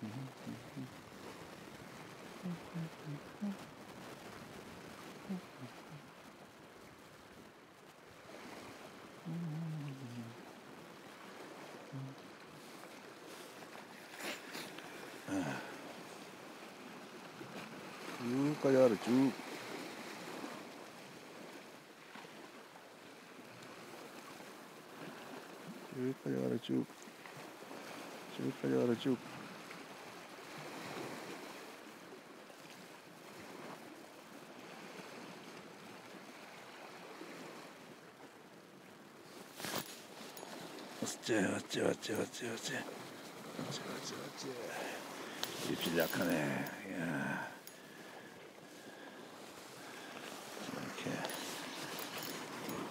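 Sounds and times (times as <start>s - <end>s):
short low vocal sound: 0.0s - 1.0s, 2.4s - 3.6s, 9.2s - 10.4s, 11.9s - 12.2s
sea waves against rocks: 0.0s - 52.9s.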